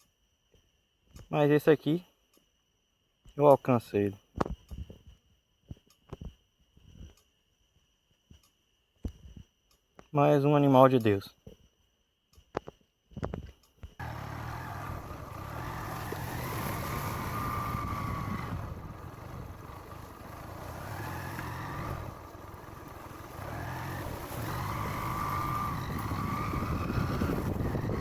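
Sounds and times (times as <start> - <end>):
road noise: 14.0 - 28.0
vehicle engine accelerating: 14.0 - 28.0.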